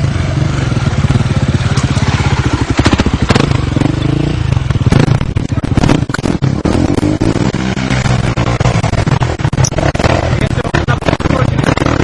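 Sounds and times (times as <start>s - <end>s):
dirt bike engine revving: 0.0s - 12.0s
sharp clacks: 4.9s - 12.0s.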